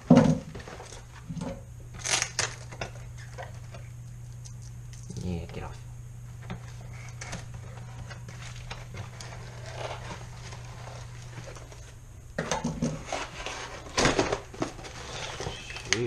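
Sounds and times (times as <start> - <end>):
steady low hum: 0.0 - 16.0
packaging rustling and scratching: 6.7 - 12.0, 12.7 - 16.0.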